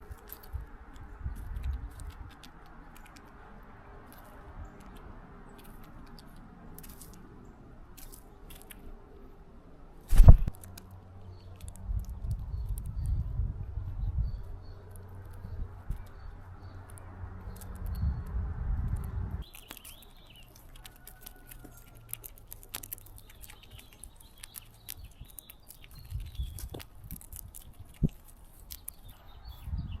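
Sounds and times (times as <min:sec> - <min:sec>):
small birds chirping faintly: 0:00.0 - 0:30.0
low rumbling noise: 0:09.5 - 0:19.4.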